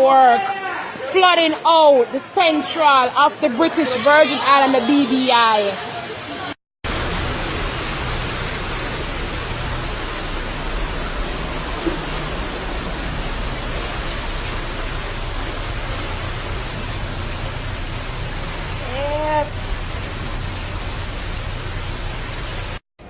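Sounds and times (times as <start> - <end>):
heavy rain hissing: 6.4 - 22.8.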